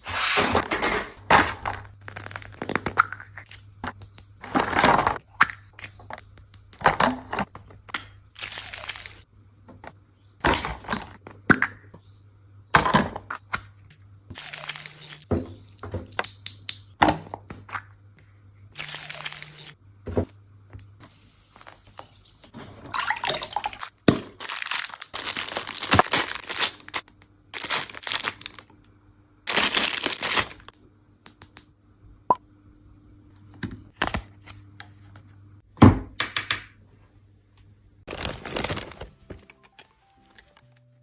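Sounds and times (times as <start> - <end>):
plastic packaging crinkling and tearing: 1.6 - 2.8, 8.4 - 9.2, 14.3 - 15.3, 18.8 - 19.8, 23.6 - 28.7, 29.5 - 30.7, 38.1 - 40.9.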